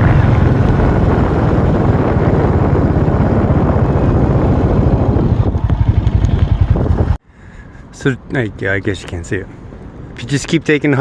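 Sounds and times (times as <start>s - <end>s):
motorcycle engine pulsing: 0.0s - 7.2s
wind noise: 0.0s - 11.0s.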